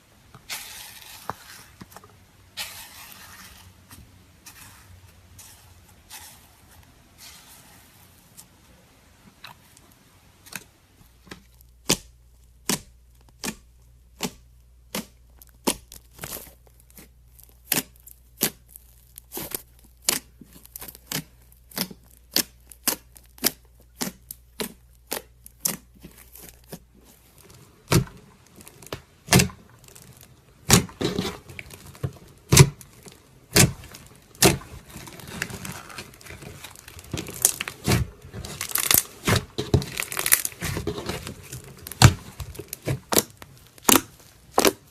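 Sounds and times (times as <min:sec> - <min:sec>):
slime clicking and popping: 0:11.8 - 0:26.8, 0:27.9 - 0:44.9
crackling: 0:15.3 - 0:44.9.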